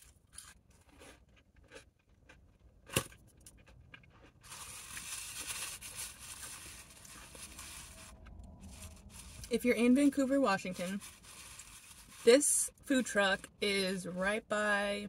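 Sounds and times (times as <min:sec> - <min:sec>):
chewing with small crunches: 0:00.0 - 0:09.6
soft rustling: 0:04.4 - 0:12.4.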